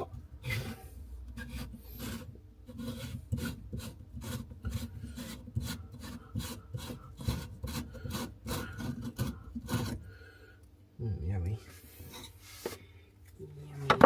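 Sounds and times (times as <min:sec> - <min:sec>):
hand tool scraping a fitting: 0:00.0 - 0:10.1.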